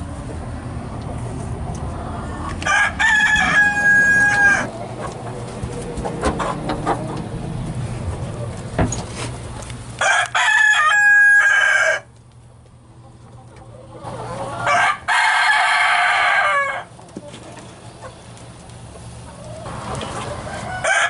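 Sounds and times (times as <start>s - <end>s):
chickens clucking: 0.2s - 9.9s, 12.6s - 21.0s
rooster crowing: 2.6s - 4.7s, 10.0s - 12.1s, 14.1s - 16.9s, 20.3s - 21.0s.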